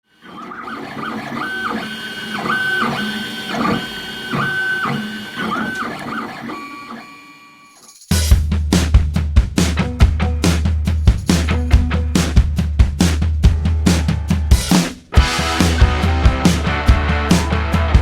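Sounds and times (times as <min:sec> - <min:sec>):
stepper motors whining: 0:00.2 - 0:07.6
music with drum beat: 0:08.1 - 0:18.0.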